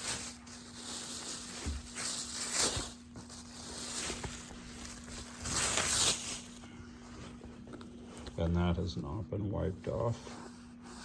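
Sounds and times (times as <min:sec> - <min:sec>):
leather jacket rustling: 0:00.0 - 0:06.6
faint steady hum: 0:00.0 - 0:11.0.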